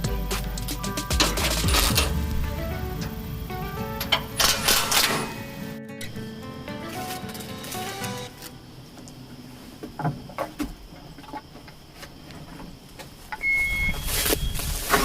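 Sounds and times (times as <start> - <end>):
diesel engine cranking and starting: 0.0 - 5.4
short beep: 13.4 - 14.6.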